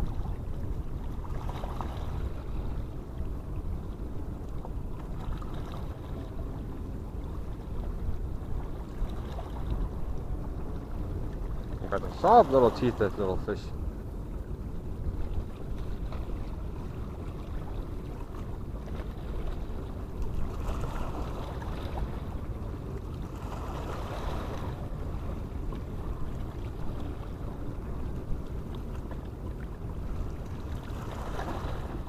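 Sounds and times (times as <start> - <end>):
wind buffeting the microphone: 0.0 - 13.0.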